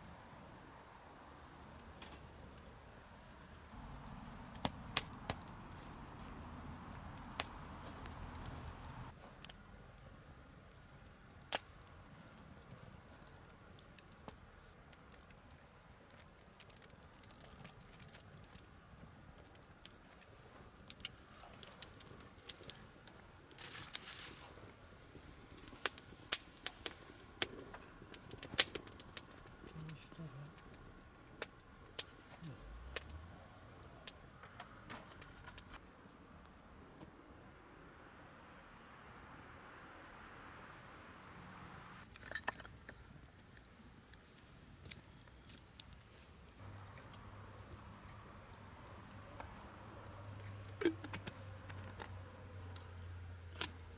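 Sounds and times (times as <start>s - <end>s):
fire hiss: 0.0s - 9.4s, 20.0s - 31.1s
campfire crackling: 0.0s - 53.9s
faint steady hiss: 0.0s - 53.9s.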